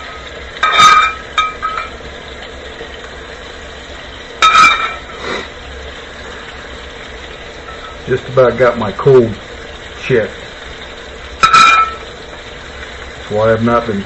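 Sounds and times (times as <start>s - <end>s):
utensil clinking against a dish: 0.0s - 2.0s, 4.4s - 5.2s, 11.4s - 12.1s.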